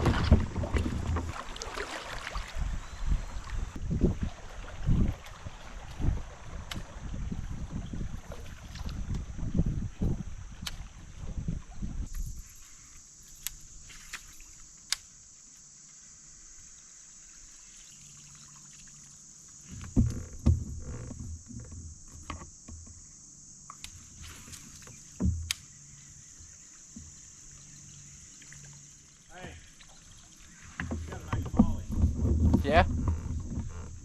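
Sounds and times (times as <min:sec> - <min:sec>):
thumps on kayak hull: 0:00.0 - 0:01.7, 0:19.7 - 0:23.0, 0:24.9 - 0:25.5, 0:30.6 - 0:34.0
high-pitched insect drone: 0:09.6 - 0:30.8.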